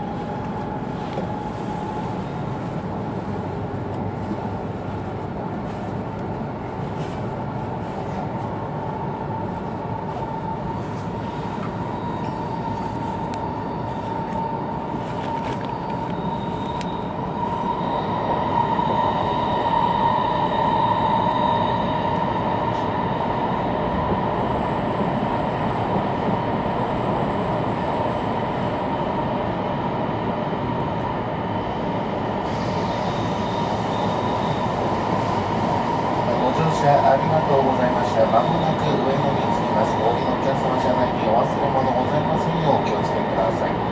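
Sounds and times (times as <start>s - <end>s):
train rumble inside carriage: 0.0s - 43.9s.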